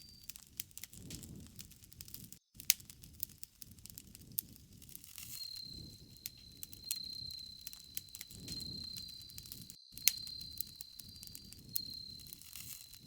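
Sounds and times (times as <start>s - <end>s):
campfire crackling: 0.0s - 13.0s
insect trill: 4.9s - 13.0s.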